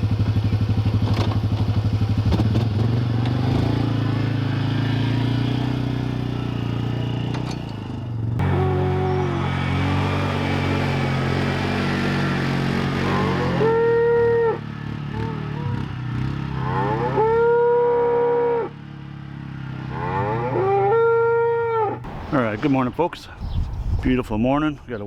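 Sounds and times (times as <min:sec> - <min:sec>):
engine running low: 0:00.0 - 0:25.0
cattle mooing: 0:08.4 - 0:11.0, 0:12.8 - 0:14.6, 0:16.5 - 0:18.7, 0:19.9 - 0:22.0.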